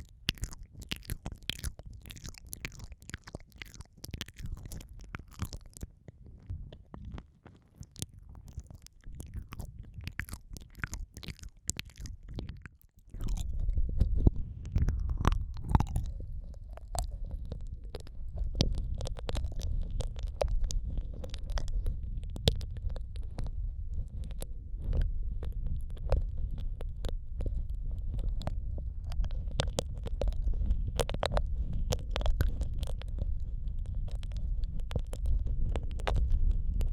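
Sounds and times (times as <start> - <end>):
wet mouth sounds on microphone: 0.0 - 36.9
deep muffled rumble: 13.1 - 36.9.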